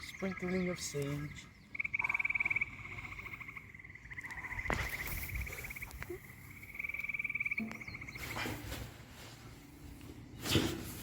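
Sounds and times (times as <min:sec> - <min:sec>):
frog trilling: 0:01.4 - 0:08.3.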